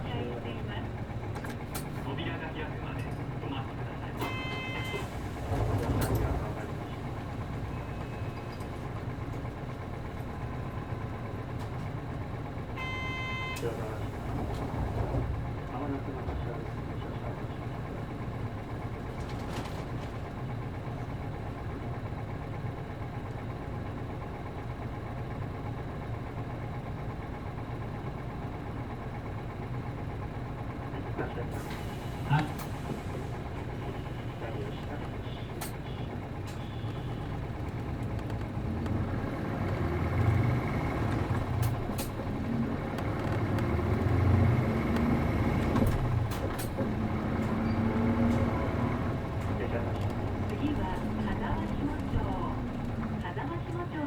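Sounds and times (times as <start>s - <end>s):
bus diesel engine idling: 0.0s - 54.0s
sharp clicks and rattles: 49.3s - 53.3s.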